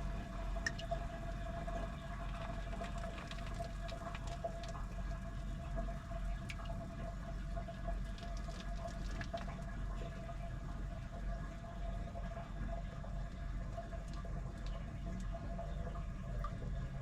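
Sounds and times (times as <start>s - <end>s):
low motor hum: 0.0s - 17.0s
water sloshing in washing machine: 0.0s - 17.0s
small splashes and clicks: 0.6s - 1.0s, 1.8s - 5.8s, 6.4s - 6.8s, 7.6s - 10.2s, 13.3s - 16.9s.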